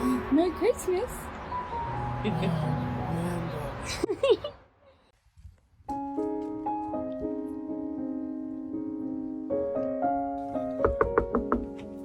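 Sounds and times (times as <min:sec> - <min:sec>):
slow piano music: 0:01.2 - 0:03.9, 0:05.9 - 0:12.0.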